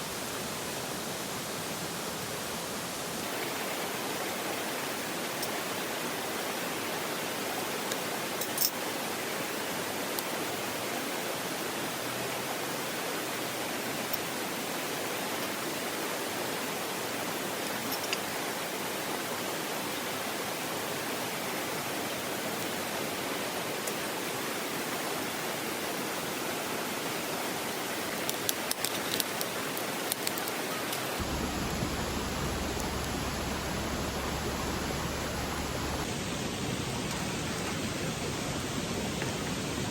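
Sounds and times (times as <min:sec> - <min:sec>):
stream water rushing: 0:00.0 - 0:36.1
sharp clicks: 0:31.2 - 0:36.1
sharp crackles: 0:31.2 - 0:36.1.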